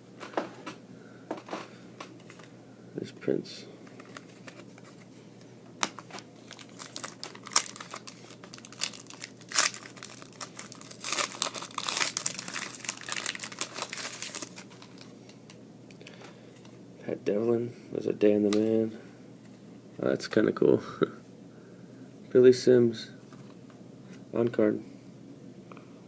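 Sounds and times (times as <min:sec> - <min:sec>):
wrapper tearing and crinkling: 0:06.0 - 0:15.1.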